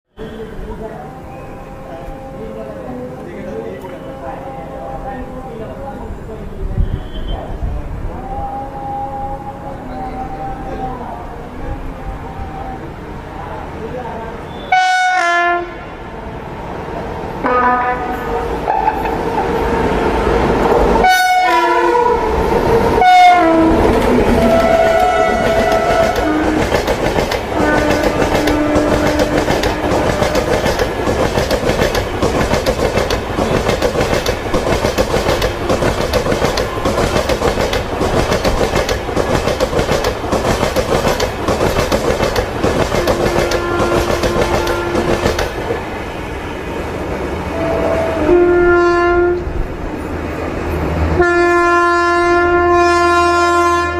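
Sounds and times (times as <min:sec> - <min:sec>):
train horn: 0:00.1 - 0:05.5, 0:06.8 - 0:12.9, 0:14.5 - 0:16.1, 0:17.4 - 0:19.1, 0:21.0 - 0:26.8, 0:27.4 - 0:31.0, 0:42.9 - 0:45.5, 0:47.5 - 0:49.6, 0:51.1 - 0:53.9
train wheels clattering on rails: 0:23.7 - 0:46.0.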